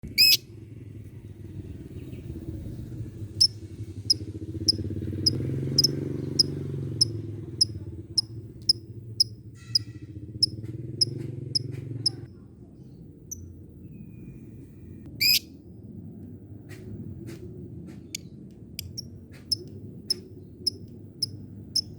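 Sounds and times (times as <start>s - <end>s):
low steady rumble: 0.0s - 21.9s
lovebird call: 0.1s - 0.4s
lovebird ticking call: 0.1s - 0.4s, 3.4s - 12.2s, 18.8s - 21.9s.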